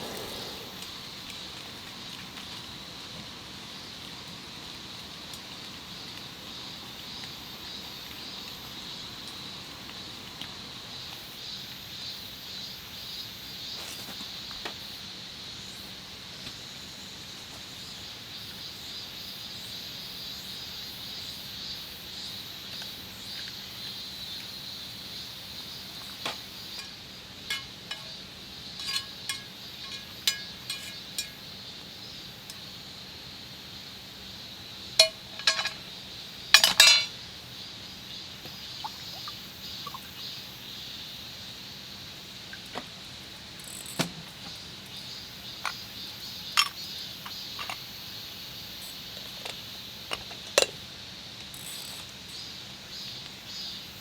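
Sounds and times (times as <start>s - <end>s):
dishes and cutlery clinking: 26.7s - 28.2s, 28.8s - 31.4s, 35.0s - 35.9s, 36.6s - 37.1s, 46.6s - 46.8s.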